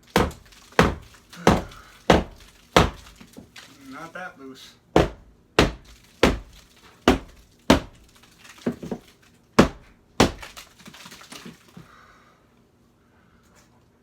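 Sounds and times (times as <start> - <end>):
hammer knocking on drywall: 0.2 - 3.1, 5.0 - 8.0, 9.6 - 10.4.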